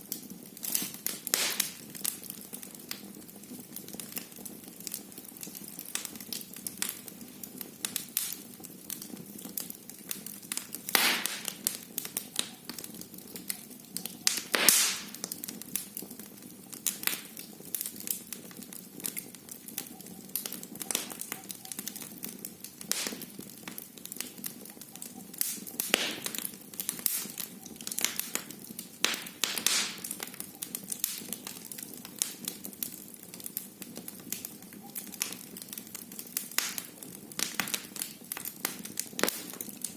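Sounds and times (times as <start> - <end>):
fire pops: 0.0 - 39.9
wood fire crackling: 0.0 - 39.9
low hiss: 10.8 - 11.8, 14.3 - 15.3, 22.8 - 23.5, 25.3 - 31.3.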